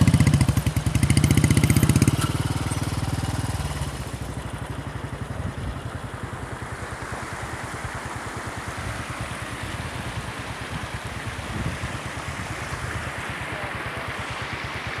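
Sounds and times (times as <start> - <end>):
motorcycle engine idling: 0.0 - 15.0
steady rushing hiss: 0.0 - 15.0.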